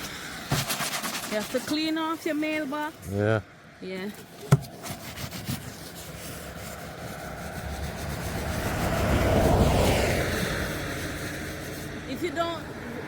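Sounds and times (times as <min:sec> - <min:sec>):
vehicle driving past: 0:06.8 - 0:13.0.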